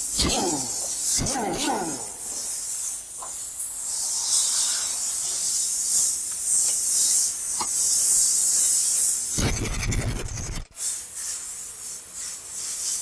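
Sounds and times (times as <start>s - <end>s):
compressed air hissing: 0.0s - 13.0s.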